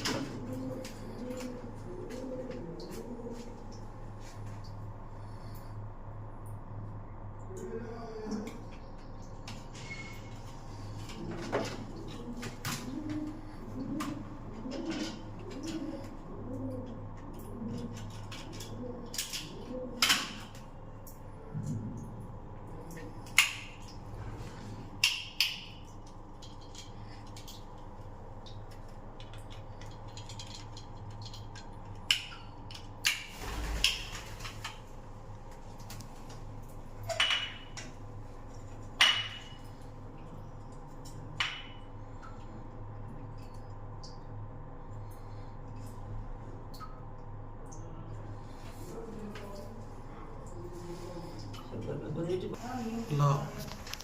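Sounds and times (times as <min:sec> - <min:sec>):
pigeon cooing: 0:00.0 - 0:04.3, 0:09.9 - 0:23.2
steady low hum: 0:00.0 - 0:54.0.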